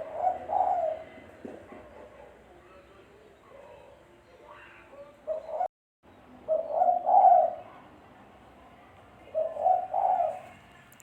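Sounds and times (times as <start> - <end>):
dove cooing: 0.0 - 2.3, 4.6 - 5.7, 6.4 - 7.8, 9.3 - 10.6.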